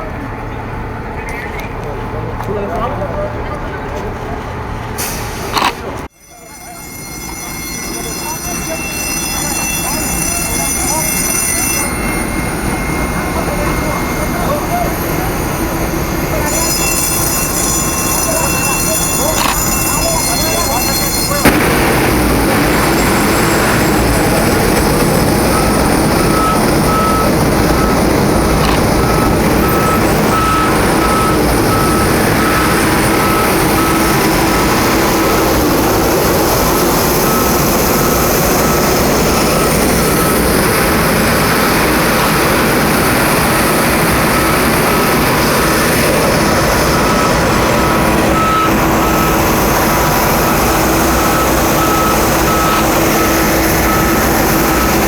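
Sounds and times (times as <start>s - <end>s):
reversing alarm beeping: 5.0s - 55.0s
engine noise rushing: 7.9s - 55.0s.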